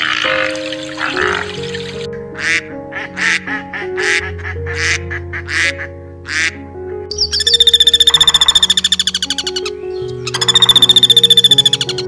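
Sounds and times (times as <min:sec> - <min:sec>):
raspy animal calls: 0:00.0 - 0:12.0
soft background music: 0:00.0 - 0:12.0
fast high pulsing trill: 0:07.1 - 0:09.5, 0:10.3 - 0:12.0.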